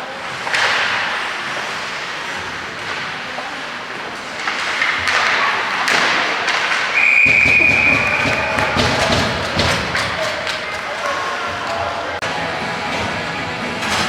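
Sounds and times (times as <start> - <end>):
hockey sticks and puck knocking: 0.3 - 11.8
referee's whistle: 7.0 - 8.6.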